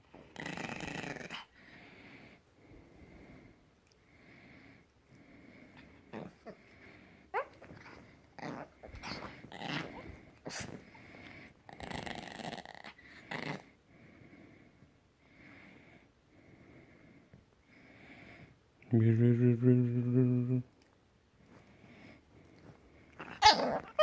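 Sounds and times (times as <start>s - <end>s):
puppy grunting: 6.0s - 6.7s, 7.3s - 10.9s, 23.2s - 24.0s
puppy squeaking: 23.4s - 24.0s.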